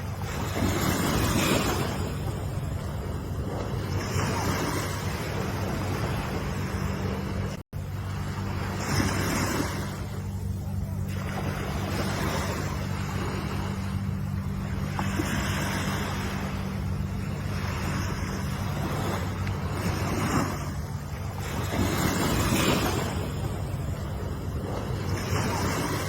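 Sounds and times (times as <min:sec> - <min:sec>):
ocean waves breaking on shore: 0:00.0 - 0:26.0
steady low rumble: 0:00.0 - 0:26.0.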